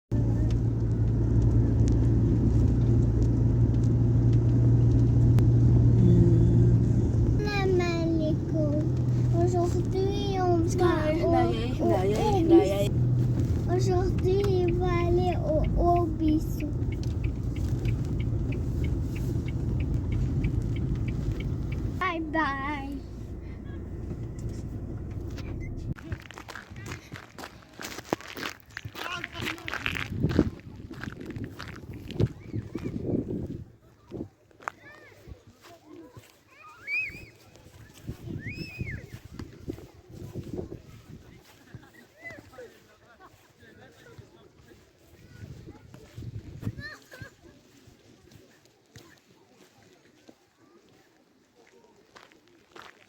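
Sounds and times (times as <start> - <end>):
vehicle engine hum: 0.1 - 26.6
road noise rumbling: 0.1 - 34.7
light regular ticking: 6.7 - 26.0.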